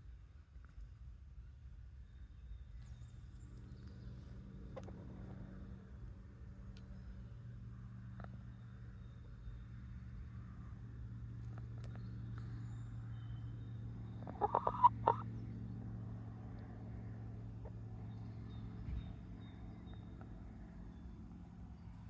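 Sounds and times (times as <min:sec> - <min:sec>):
steady low hum: 0:00.0 - 0:22.0
chicken clucking: 0:14.2 - 0:15.2.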